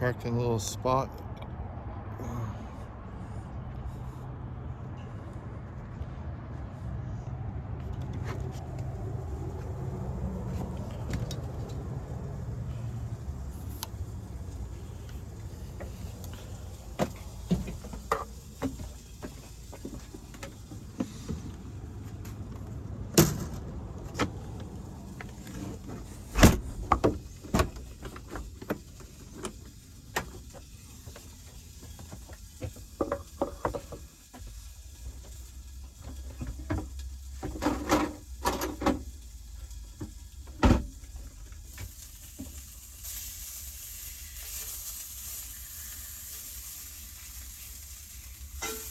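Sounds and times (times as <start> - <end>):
sharp thuds: 26.3 - 27.2
sausages sizzling in a frying pan: 29.8 - 37.4, 39.0 - 48.9.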